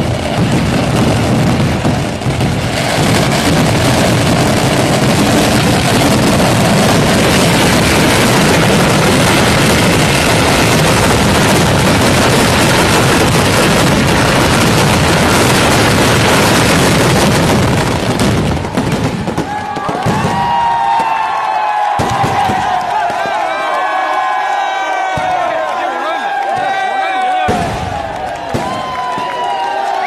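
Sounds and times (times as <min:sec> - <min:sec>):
fireworks bangs and crackling: 0:00.0 - 0:30.0.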